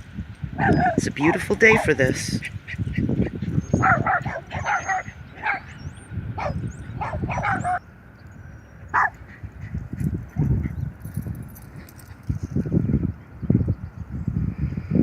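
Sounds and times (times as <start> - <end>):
dogs barking: 0.6 - 7.8, 8.9 - 10.8.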